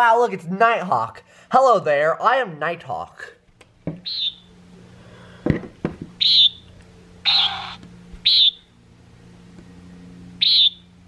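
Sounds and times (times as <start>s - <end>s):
recorded bird calls: 4.0s - 4.6s, 6.2s - 8.7s, 10.4s - 10.9s
handling thumps: 5.4s - 6.2s.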